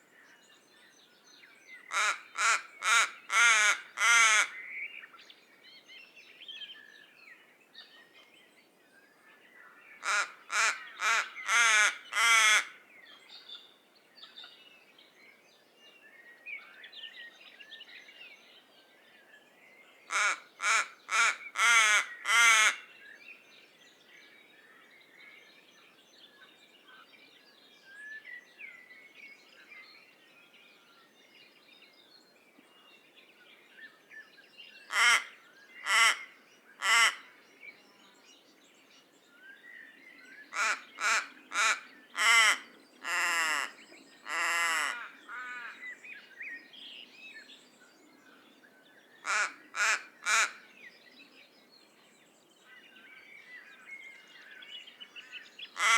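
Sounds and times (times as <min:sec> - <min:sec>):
raven croaking calls: 0:01.9 - 0:04.5, 0:10.0 - 0:12.8, 0:20.1 - 0:22.8, 0:34.9 - 0:37.2, 0:40.5 - 0:45.8, 0:49.2 - 0:50.6.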